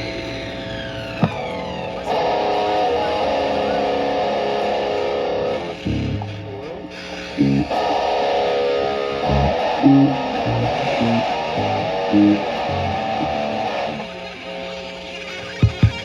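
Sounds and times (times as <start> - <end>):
electric guitar through an amp: 0.0 - 16.0.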